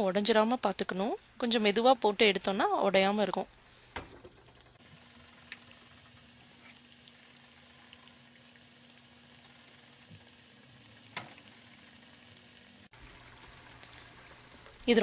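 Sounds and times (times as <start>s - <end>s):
deep-frying sizzle in oil: 3.6s - 15.0s.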